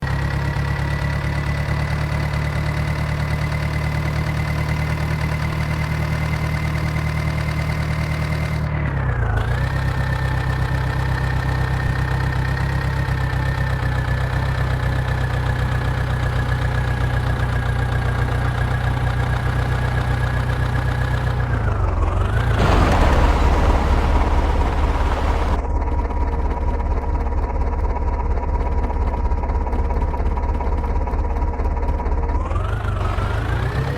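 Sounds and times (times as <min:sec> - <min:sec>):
diesel engine running: 0:22.6 - 0:25.6.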